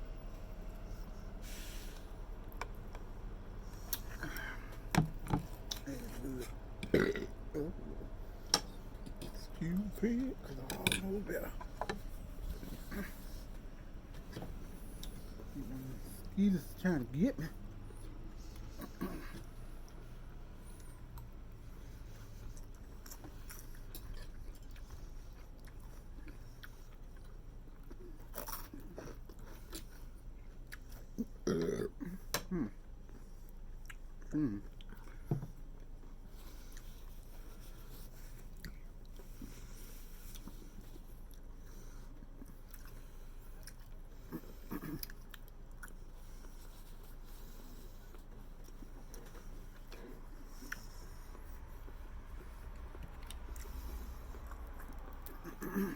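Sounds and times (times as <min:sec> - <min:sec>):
person chewing: 0:01.9 - 0:16.4, 0:18.4 - 0:31.7, 0:32.8 - 0:55.9.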